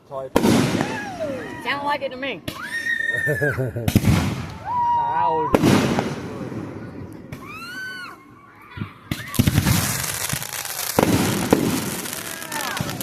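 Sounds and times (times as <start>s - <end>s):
fireworks crackling: 0.2s - 2.7s, 3.8s - 4.9s, 5.5s - 8.0s, 9.0s - 13.0s
firework bangs: 0.3s - 1.3s, 3.8s - 7.8s, 9.0s - 13.0s.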